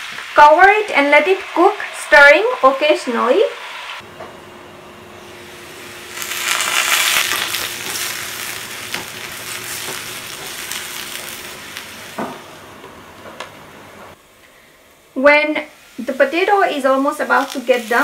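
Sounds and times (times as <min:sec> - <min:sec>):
potatoes sizzling in hot oil: 0:00.0 - 0:03.9, 0:05.2 - 0:12.7, 0:15.2 - 0:18.0.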